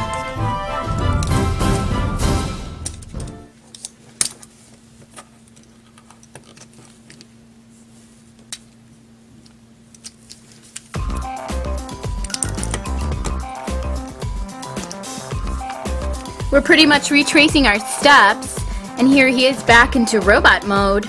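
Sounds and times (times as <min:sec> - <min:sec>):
background music: 0:00.0 - 0:03.5, 0:11.0 - 0:21.0.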